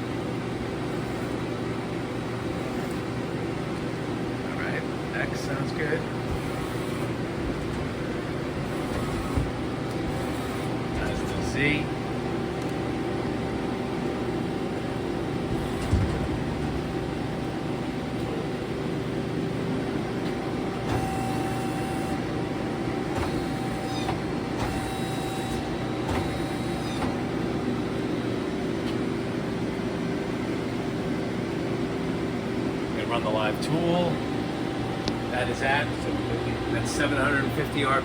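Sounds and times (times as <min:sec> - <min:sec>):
lathe humming: 0:00.0 - 0:15.8
axis drive whine: 0:00.0 - 0:38.0.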